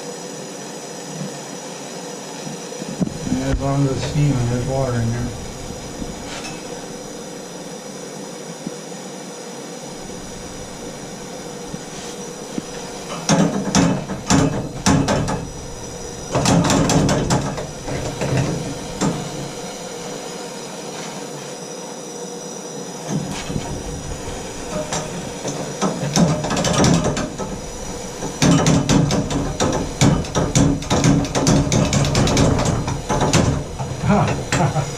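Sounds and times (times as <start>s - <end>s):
gas torch hissing: 0.0s - 34.9s
knocking and clattering handling: 10.0s - 19.8s, 23.1s - 34.8s.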